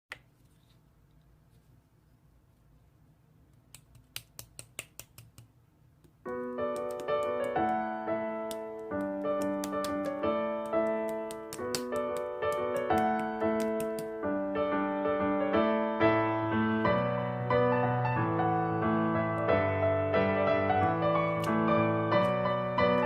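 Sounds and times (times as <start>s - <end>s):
solo piano music: 6.2s - 23.0s.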